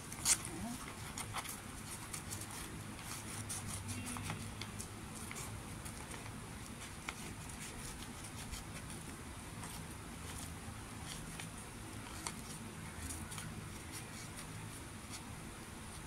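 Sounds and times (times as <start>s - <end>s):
low steady hum: 0.0s - 16.0s
scissors snipping paper: 0.1s - 9.0s.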